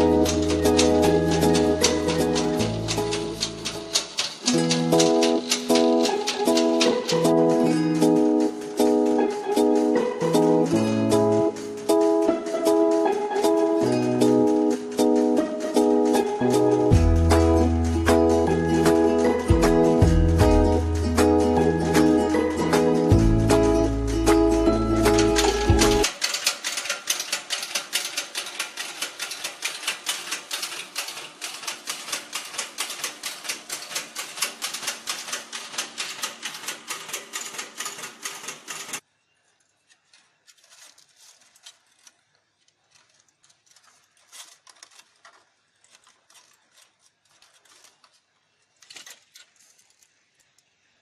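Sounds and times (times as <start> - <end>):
sieve shaker rattling: 0.0 - 39.0.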